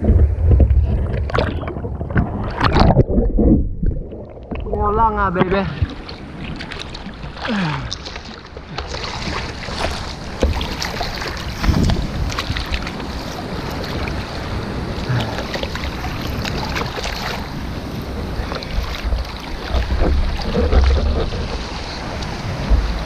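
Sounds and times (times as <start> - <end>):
surf at the shore: 0.0 - 23.0
wind buffeting the microphone: 9.1 - 23.0.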